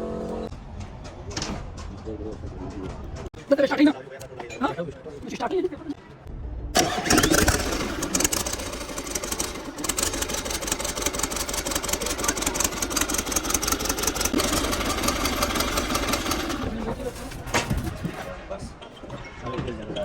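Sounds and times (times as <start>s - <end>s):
diesel engine starting and clattering: 6.8s - 18.3s.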